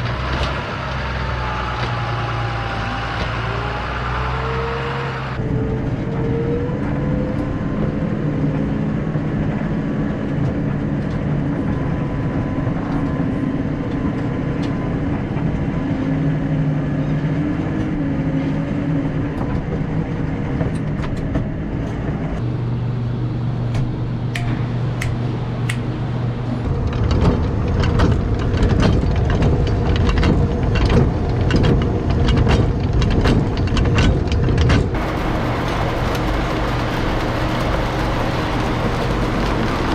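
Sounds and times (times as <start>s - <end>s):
farm machinery engine running: 0.0s - 13.8s, 22.4s - 39.9s
sharp clicks and knocks: 23.7s - 25.9s, 26.8s - 35.1s.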